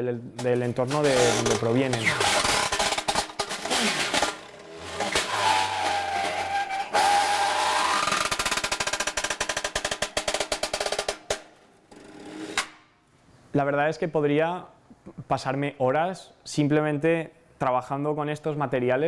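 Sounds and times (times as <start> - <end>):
fast even patter of strokes: 0.4 - 10.9.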